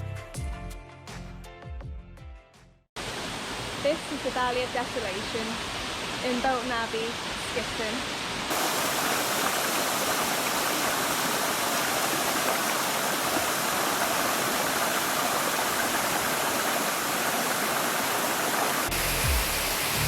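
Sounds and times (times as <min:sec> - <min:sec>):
music with low beat: 0:00.0 - 0:02.8, 0:18.9 - 0:20.0
waterfall roaring: 0:03.0 - 0:20.0.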